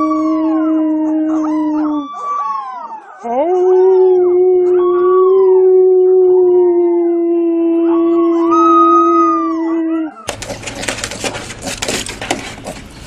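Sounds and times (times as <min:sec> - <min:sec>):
dog higher howl rising and falling: 0:00.0 - 0:10.3
dog long steady howl: 0:00.0 - 0:10.3.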